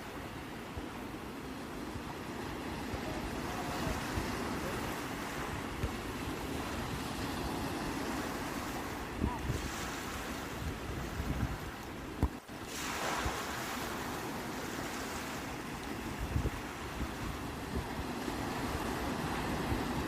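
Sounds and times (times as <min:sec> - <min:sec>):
sea waves washing onto shore: 0:00.0 - 0:20.0.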